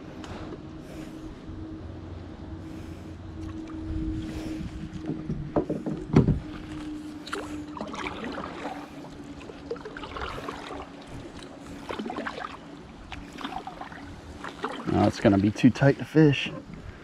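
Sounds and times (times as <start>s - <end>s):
faint steady hum: 0.0s - 17.0s
paddle and hull clicks and scrapes: 3.4s - 15.4s.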